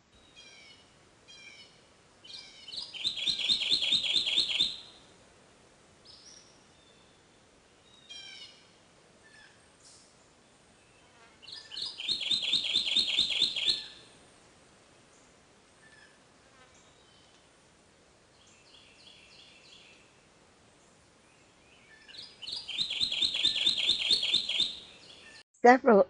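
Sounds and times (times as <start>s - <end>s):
bird singing rolling song: 0.1s - 5.0s, 6.0s - 14.1s, 16.8s - 17.5s, 18.2s - 25.4s
faint bird calls: 0.2s - 4.9s, 7.9s - 10.1s, 10.9s - 14.1s, 21.3s - 25.4s.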